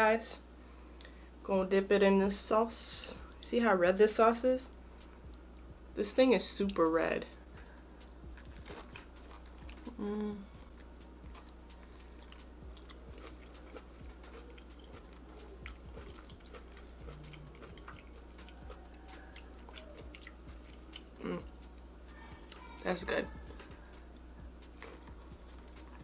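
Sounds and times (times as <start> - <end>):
chewing and biting prawn: 8.3 - 10.0, 10.8 - 21.3, 24.8 - 26.0
person humming mm: 9.8 - 10.7, 17.1 - 17.8, 21.2 - 21.6.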